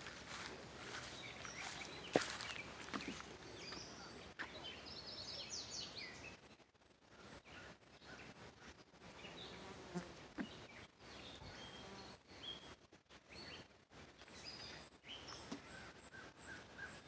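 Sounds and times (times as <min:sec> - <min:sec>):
faint bird chirps: 0:00.0 - 0:09.7
insects buzzing softly: 0:00.0 - 0:17.0.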